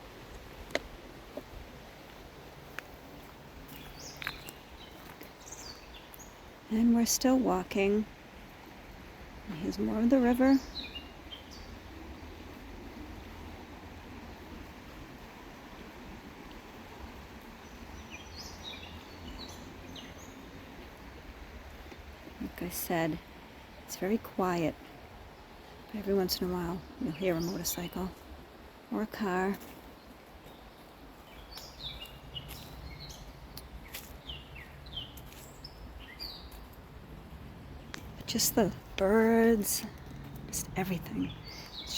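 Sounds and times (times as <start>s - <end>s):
songbird singing: 2.6s - 8.2s, 9.4s - 13.1s, 16.4s - 41.9s
low outdoor rumble: 32.4s - 41.9s.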